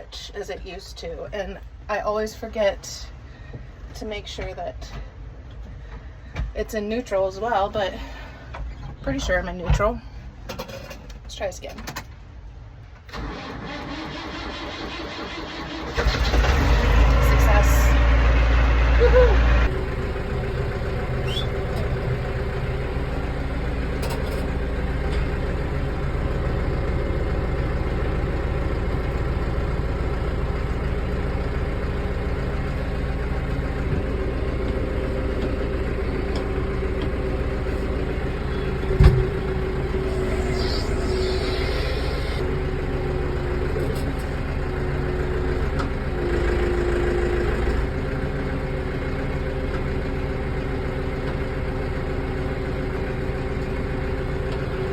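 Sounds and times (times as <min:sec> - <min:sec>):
tractor engine running: 0:13.2 - 0:54.9.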